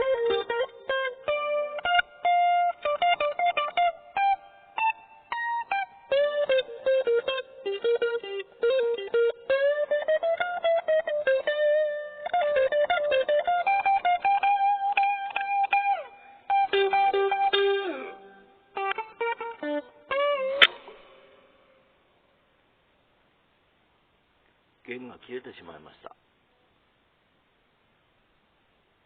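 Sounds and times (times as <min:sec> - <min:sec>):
guitar downward slide: 0:00.0 - 0:21.8
electric guitar picked melody: 0:00.0 - 0:22.0.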